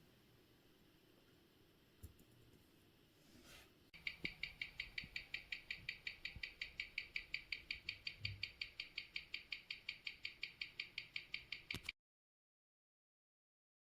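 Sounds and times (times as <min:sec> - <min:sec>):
watch ticking: 0:04.0 - 0:11.9.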